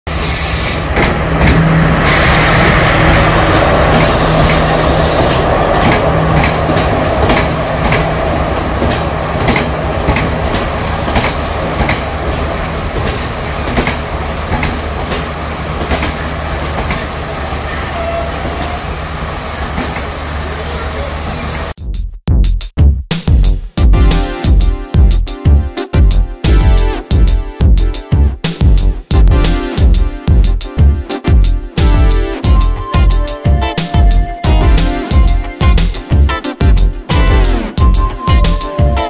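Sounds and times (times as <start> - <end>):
train rumbling past: 0.1 - 21.8
wheels clacking over rail joints: 0.9 - 1.8, 3.0 - 17.3.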